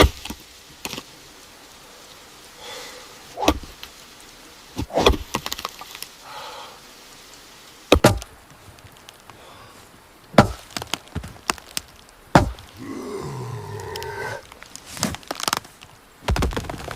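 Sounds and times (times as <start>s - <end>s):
axe chopping wood: 0.0s - 1.0s, 3.4s - 3.8s, 4.8s - 5.6s, 7.9s - 8.3s, 10.3s - 11.6s, 12.3s - 12.7s.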